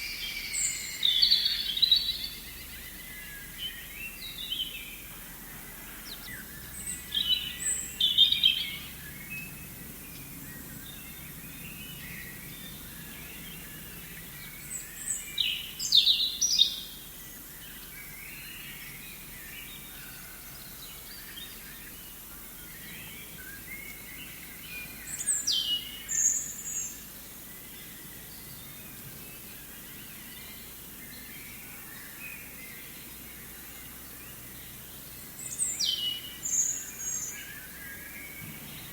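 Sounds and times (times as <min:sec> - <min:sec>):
soft steady hiss: 0:00.0 - 0:38.9
distant birds chirping: 0:34.6 - 0:38.9.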